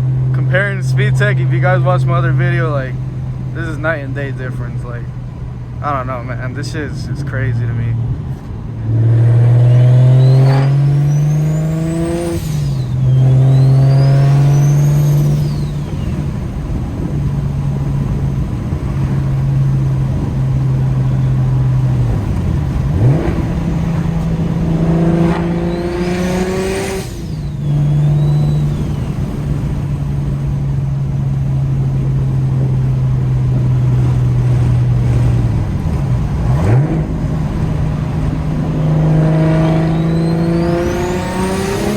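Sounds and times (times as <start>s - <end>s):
car engine accelerating: 0.0s - 41.9s
high turbo whistle: 9.6s - 16.6s, 23.5s - 30.0s, 39.2s - 41.9s.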